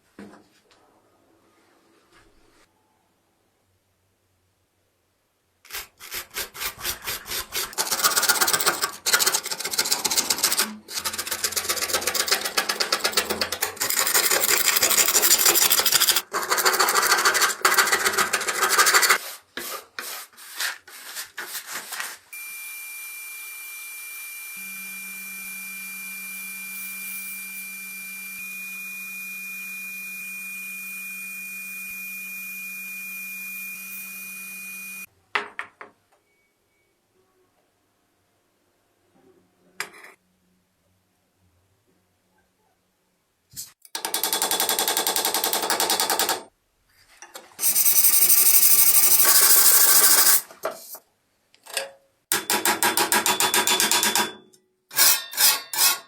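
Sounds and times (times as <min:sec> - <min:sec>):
small electric machine whine: 0:22.3 - 0:35.1
rhythmic hand scrubbing: 0:47.6 - 0:50.4.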